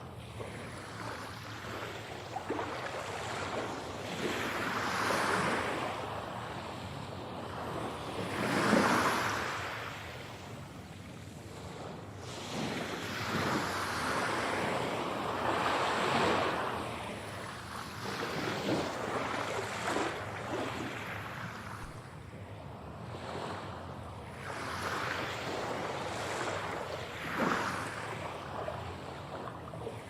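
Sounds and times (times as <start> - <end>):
ocean waves breaking: 0.0 - 30.0.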